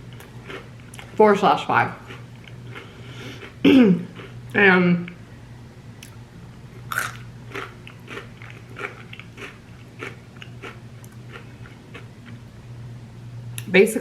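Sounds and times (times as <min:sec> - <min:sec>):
chewing crunchy chips: 0:00.0 - 0:01.2, 0:02.0 - 0:04.5, 0:06.8 - 0:12.4.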